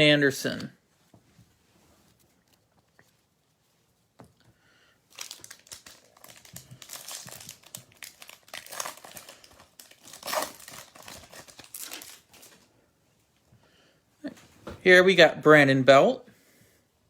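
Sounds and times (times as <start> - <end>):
wrapper crackling and rustling: 5.0 - 12.7
wrapper ripping: 5.1 - 12.6.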